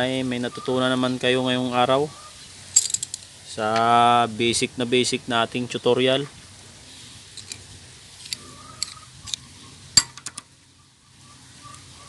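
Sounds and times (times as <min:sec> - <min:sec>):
hard objects clinking: 0:02.8 - 0:03.3.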